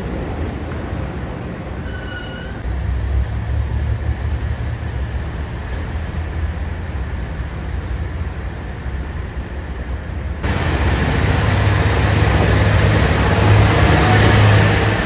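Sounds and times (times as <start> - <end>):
diesel railcar rumbling: 0.0 - 15.0
faint wheel squeal: 0.3 - 0.9, 1.8 - 2.6.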